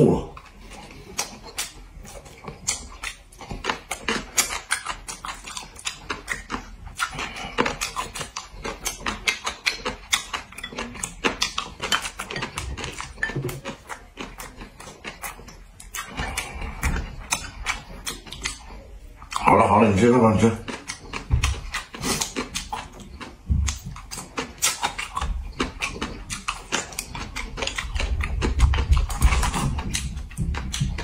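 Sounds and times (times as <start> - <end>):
crunchy chewing: 0.0 - 31.0
chopsticks tapping porcelain bowls: 10.3 - 13.7.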